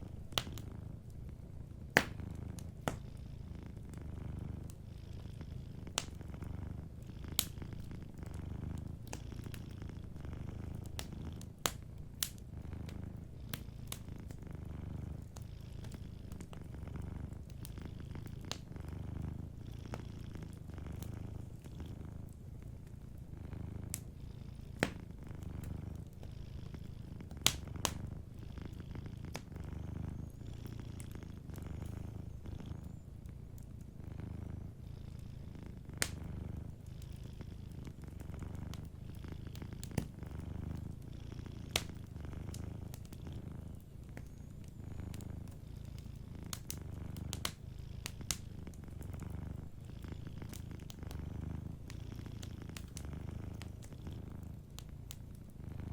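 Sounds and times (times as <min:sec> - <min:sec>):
cat purring: 0:00.0 - 0:55.9
wood fire crackling: 0:00.0 - 0:55.9.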